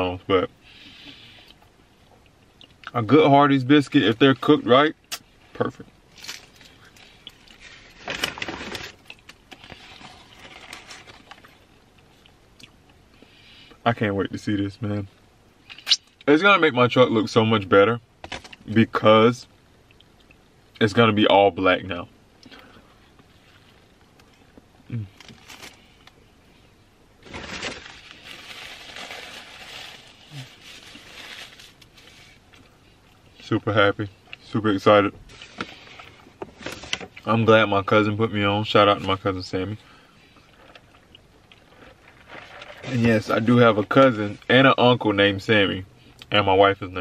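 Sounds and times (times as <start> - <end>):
rustling and crinkling: 6.1 - 12.3, 23.2 - 26.2, 27.2 - 32.8, 35.2 - 37.4, 40.4 - 44.8.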